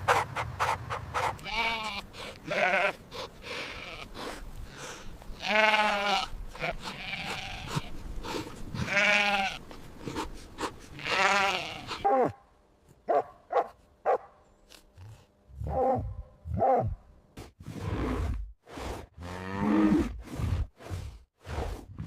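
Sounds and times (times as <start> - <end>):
sheep bleating: 1.4 - 3.0, 5.4 - 7.9, 8.8 - 9.6, 11.0 - 12.1.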